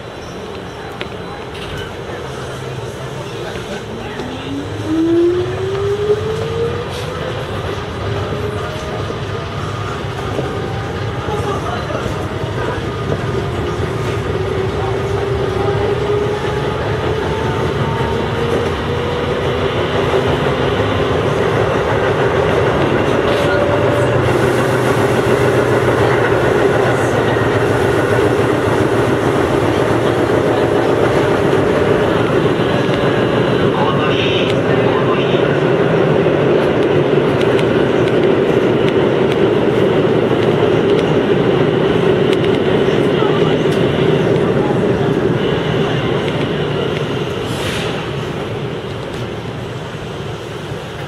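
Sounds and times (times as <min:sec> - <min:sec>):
train wheels rumbling on rails: 0:00.0 - 0:51.0.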